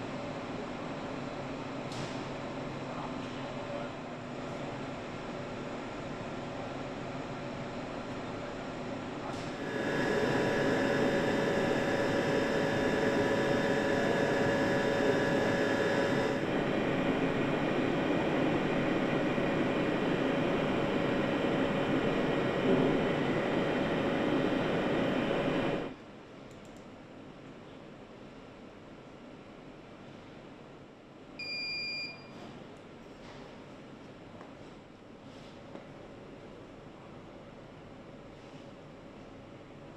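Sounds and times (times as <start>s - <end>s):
factory machinery din: 9.4s - 25.9s.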